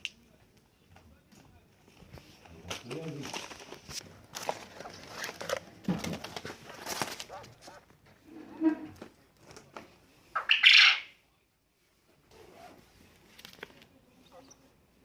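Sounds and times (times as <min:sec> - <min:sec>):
bird short calls: 0:10.4 - 0:11.1
loud harsh bird call: 0:10.4 - 0:11.2.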